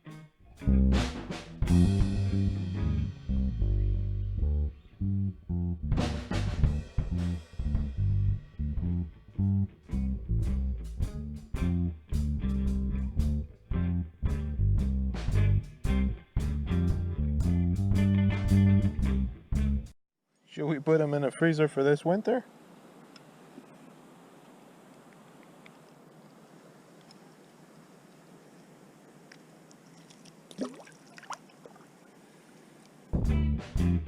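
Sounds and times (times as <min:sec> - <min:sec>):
bass guitar: 0:00.0 - 0:20.0, 0:33.2 - 0:34.0
drum kit beat: 0:00.6 - 0:03.6, 0:05.9 - 0:09.0, 0:14.3 - 0:19.9, 0:33.2 - 0:34.0
electric guitar: 0:15.7 - 0:19.1, 0:33.2 - 0:34.0.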